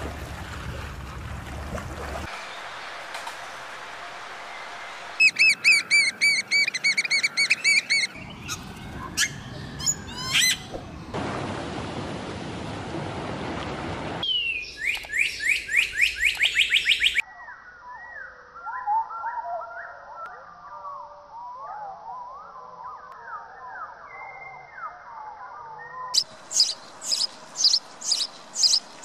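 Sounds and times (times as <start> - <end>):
birds chirping: 5.2 - 11.2, 14.2 - 20.0, 25.9 - 29.0
low warbling bird song: 5.2 - 11.2, 14.2 - 29.0.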